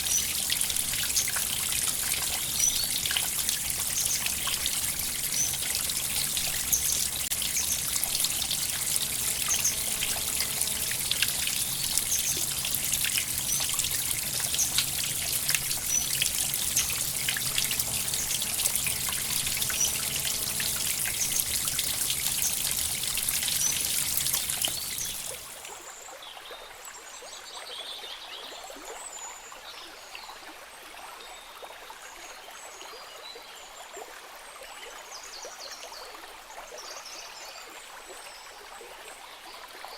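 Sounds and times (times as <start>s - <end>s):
stream trickling and splashing: 0.0s - 39.9s
faint high chirps: 5.3s - 25.6s.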